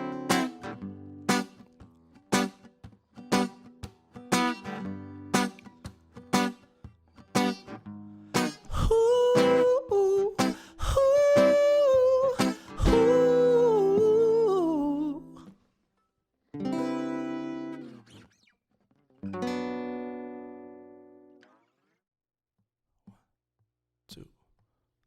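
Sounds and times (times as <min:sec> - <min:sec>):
ringing guitar chords: 0:00.0 - 0:02.6, 0:03.2 - 0:15.4, 0:16.6 - 0:18.2, 0:19.2 - 0:21.6
strummed acoustic guitar: 0:00.0 - 0:15.6, 0:16.6 - 0:18.4, 0:19.2 - 0:21.6
person singing wavering melody: 0:08.7 - 0:15.4.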